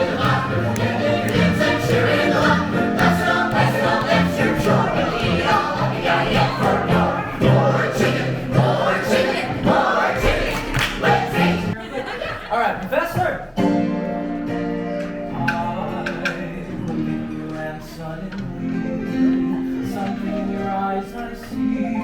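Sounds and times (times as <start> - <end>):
voices singing together: 0.0 - 11.8.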